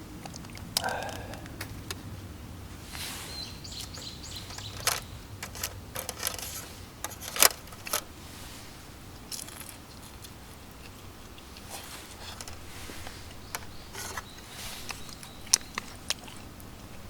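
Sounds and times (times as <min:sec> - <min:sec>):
small hard objects clinking: 0:04.5 - 0:08.0, 0:09.3 - 0:11.0.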